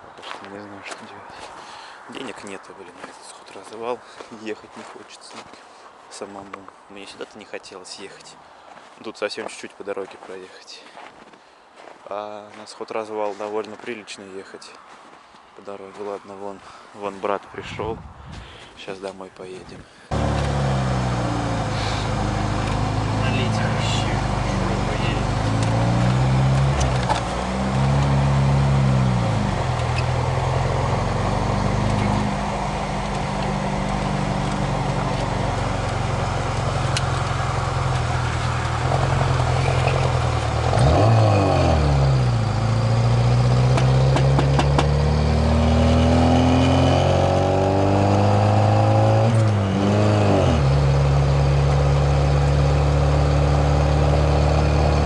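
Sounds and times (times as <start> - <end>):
car engine accelerating through gears: 20.1 - 55.0.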